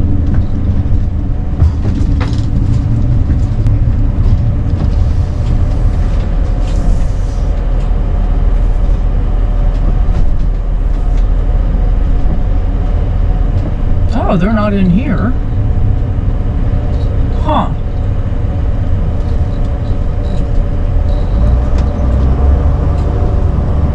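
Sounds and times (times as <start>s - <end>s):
engine and road rumble: 0.0s - 23.9s
small rattles and clicks: 19.0s - 23.2s.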